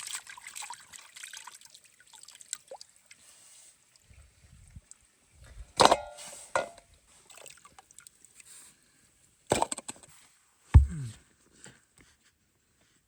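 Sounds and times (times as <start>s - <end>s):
sharp knocks and clatters: 10.8s - 11.0s
deep thump: 10.8s - 11.2s.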